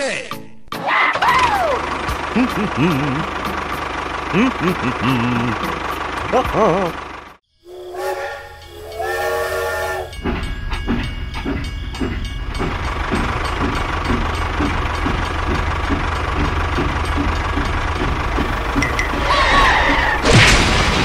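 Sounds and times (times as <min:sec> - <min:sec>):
locomotive chuffing: 0:01.2 - 0:21.0
steam train whistle: 0:07.7 - 0:10.2.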